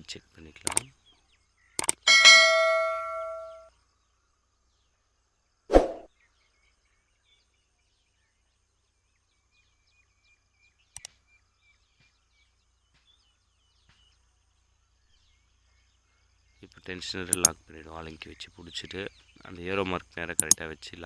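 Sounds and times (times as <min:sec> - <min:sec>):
faint birds chirping: 0:00.0 - 0:21.0
sharp tool clicks: 0:00.6 - 0:00.9, 0:01.8 - 0:02.0, 0:17.3 - 0:17.6, 0:20.4 - 0:20.6.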